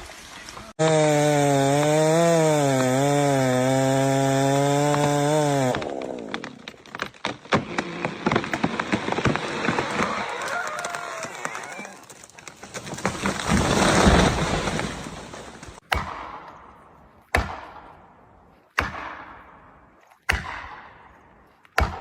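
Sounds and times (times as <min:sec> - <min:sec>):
chainsaw running under load: 0:00.8 - 0:06.5
wood cracking and snapping: 0:04.4 - 0:15.8.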